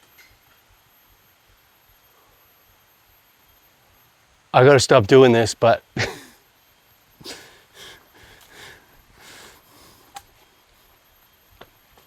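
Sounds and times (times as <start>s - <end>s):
person breathing heavily: 7.2s - 10.2s.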